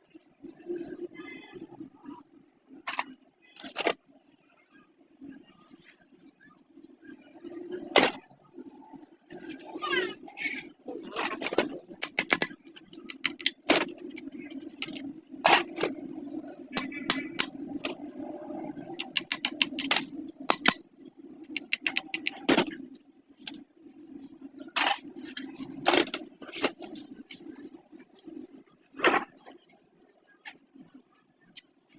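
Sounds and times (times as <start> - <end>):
metallic clicks of tools: 19.0 - 20.9.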